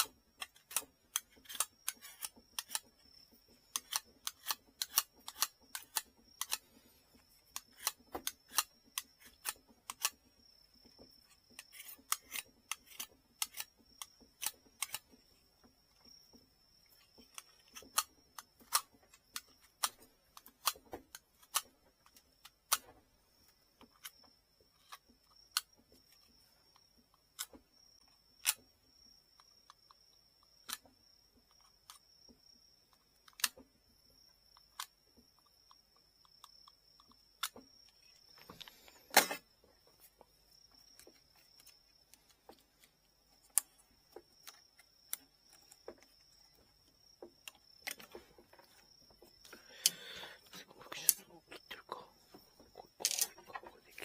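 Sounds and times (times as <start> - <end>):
hand tools clicking and tapping: 52.3 - 54.0.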